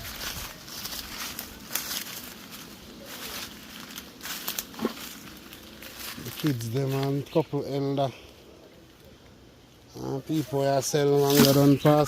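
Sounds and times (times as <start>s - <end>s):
footsteps through dry leaves: 0.0s - 8.1s, 10.3s - 12.0s
small twigs snapping: 3.8s - 6.1s.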